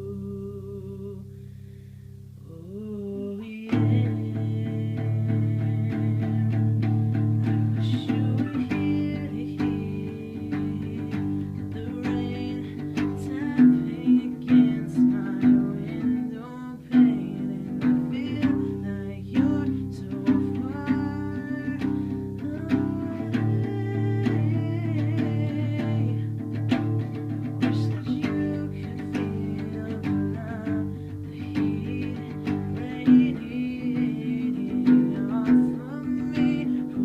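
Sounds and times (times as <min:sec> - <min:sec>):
plucked guitar music: 0:03.2 - 0:37.0.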